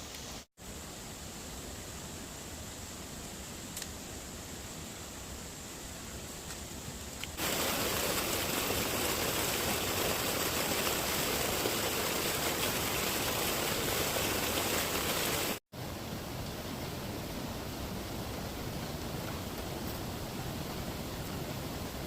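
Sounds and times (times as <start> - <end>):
water rushing: 7.4 - 22.0.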